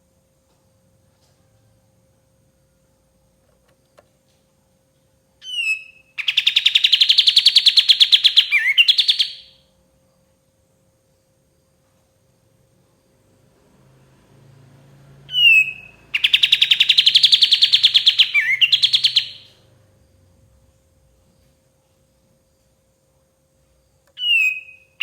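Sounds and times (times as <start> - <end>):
bird calling and trilling: 5.4 - 9.6, 15.3 - 19.6, 24.2 - 25.0.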